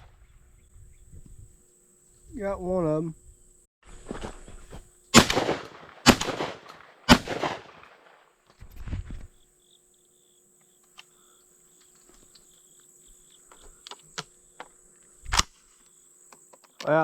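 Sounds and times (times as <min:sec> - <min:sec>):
high insect buzz: 0:00.0 - 0:06.2, 0:08.6 - 0:17.0
shotgun shots: 0:05.2 - 0:08.3.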